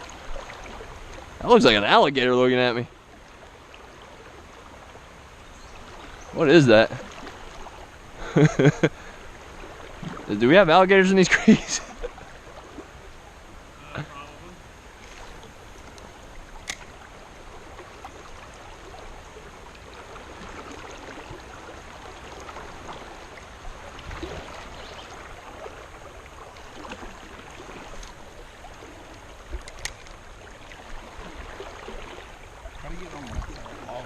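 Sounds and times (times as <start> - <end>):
creek water flowing: 0.0 - 34.0.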